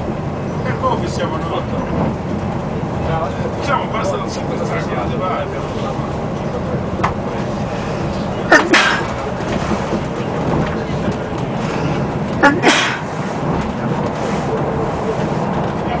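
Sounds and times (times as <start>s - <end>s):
train cabin rumble: 0.0s - 16.0s.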